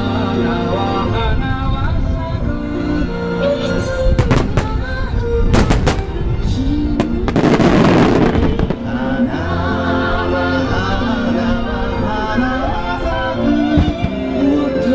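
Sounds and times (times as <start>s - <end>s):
show music: 2.5s - 14.9s
fireworks bangs: 4.2s - 9.1s
fireworks crackling: 4.2s - 9.1s.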